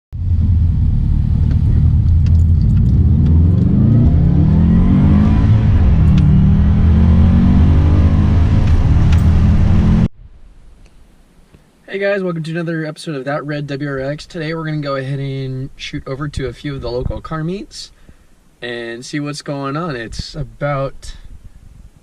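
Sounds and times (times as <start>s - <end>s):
car engine accelerating hard: 0.2s - 10.1s.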